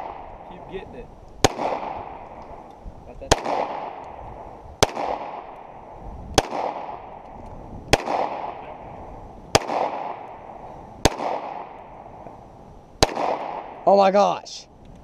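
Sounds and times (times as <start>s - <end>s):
handgun shots with echo: 6.4s - 7.0s, 13.0s - 13.7s.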